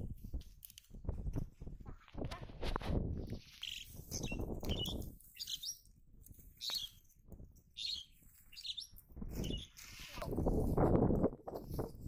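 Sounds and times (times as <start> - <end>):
rustling over dry grass: 0.0 - 12.0
small birds chirping: 3.3 - 10.2.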